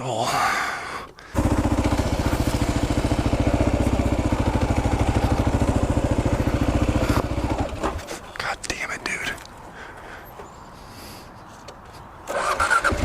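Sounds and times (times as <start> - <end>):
motorcycle engine running: 1.3 - 8.0.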